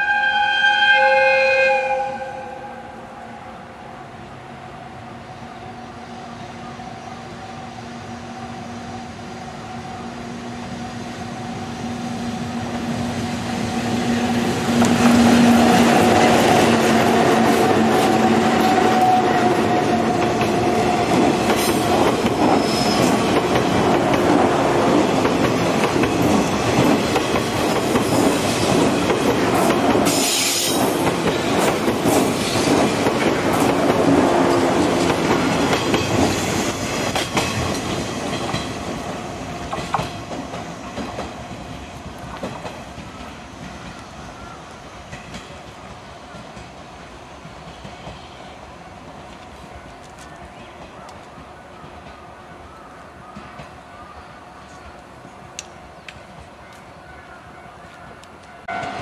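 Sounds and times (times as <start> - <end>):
dense train running noise: 0.0 - 59.0
train wheels clattering over rail joints: 20.1 - 44.0.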